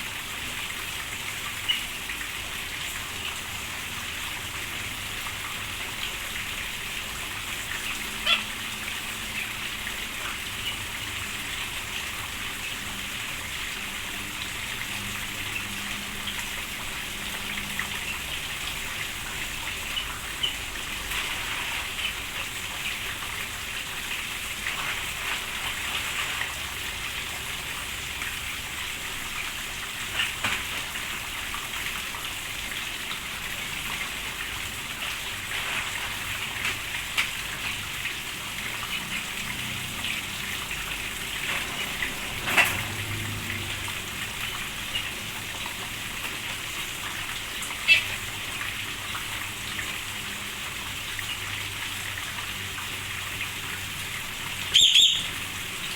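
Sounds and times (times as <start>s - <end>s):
steady rain falling: 0.0s - 55.9s
sharp taps of raindrops: 30.0s - 31.7s, 35.0s - 39.1s.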